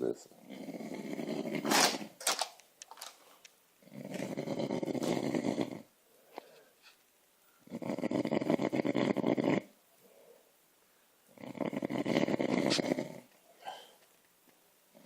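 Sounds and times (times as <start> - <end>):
man snoring heavily: 3.9 - 5.8, 11.4 - 13.2.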